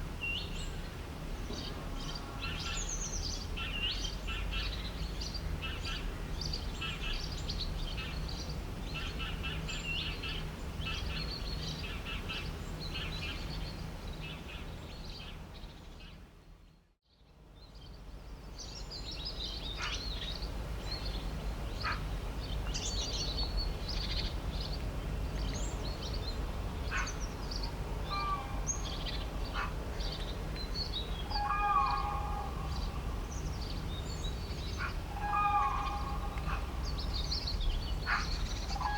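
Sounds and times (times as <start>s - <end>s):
low background rumble: 17.6s - 38.9s
long pitched bird call: 31.0s - 37.4s, 38.0s - 38.9s.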